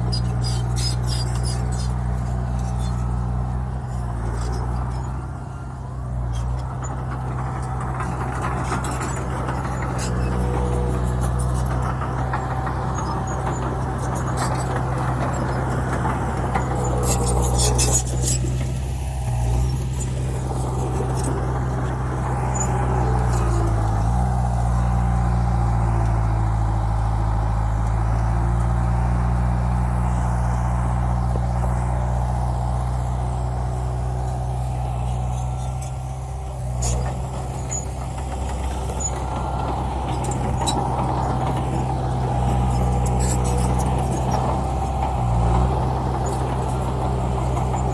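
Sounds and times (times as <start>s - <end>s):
rattling and clanking: 0.0s - 25.7s, 29.9s - 47.9s
diesel engine of earthmoving machine: 0.0s - 47.9s.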